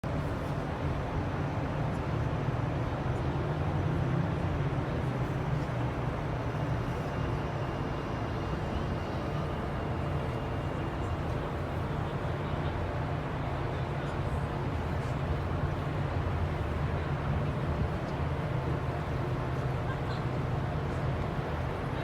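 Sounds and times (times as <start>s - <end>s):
faint thin whine: 5.3s - 19.8s.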